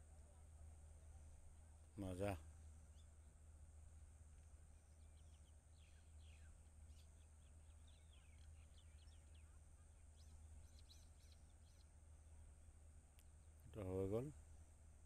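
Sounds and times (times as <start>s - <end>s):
faint bird chirps: 0.0s - 3.2s, 4.3s - 12.1s
low steady hum: 0.0s - 15.0s.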